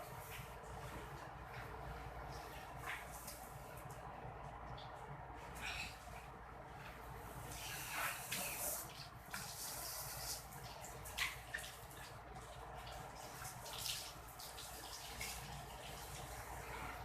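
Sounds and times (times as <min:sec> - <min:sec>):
water running and splashing: 0:07.4 - 0:17.0.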